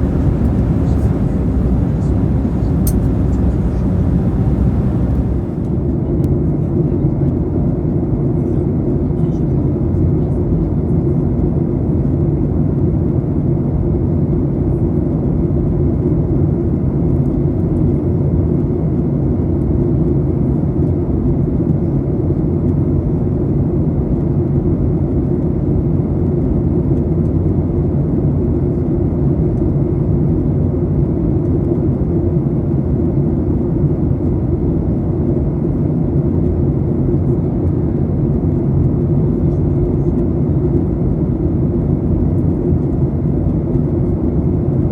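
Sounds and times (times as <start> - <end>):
airliner cabin engine rumble: 0.0 - 7.4.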